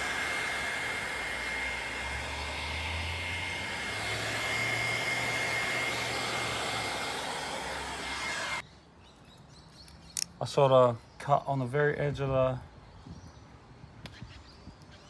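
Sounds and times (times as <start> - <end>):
heat gun blowing with whine: 0.0 - 8.6.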